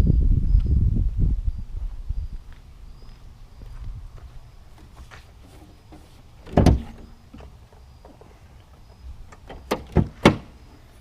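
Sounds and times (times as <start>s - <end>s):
truck door shutting with thud: 6.4s - 7.5s, 9.4s - 10.6s
sharp metallic clunks: 6.4s - 8.3s, 9.3s - 10.6s.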